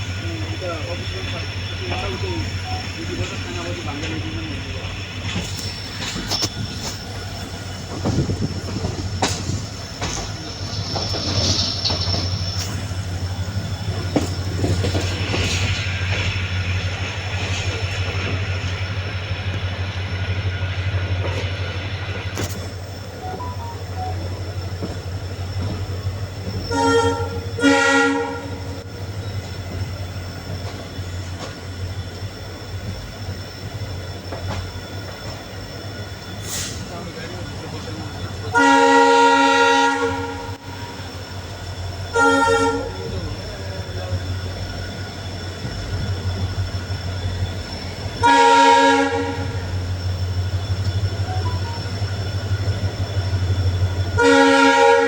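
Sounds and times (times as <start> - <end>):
train wheels rumbling on track: 0.0 - 55.0
locomotive horn blasts: 26.7 - 28.8, 38.5 - 41.0, 42.1 - 43.0, 48.2 - 49.7, 54.2 - 55.0.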